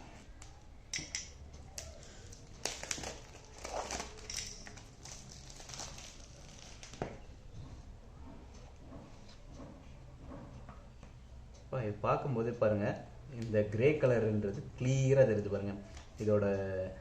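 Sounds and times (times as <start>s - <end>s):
plastic wrap crinkling and tearing: 1.8s - 7.2s
packaging rustling: 1.8s - 7.3s.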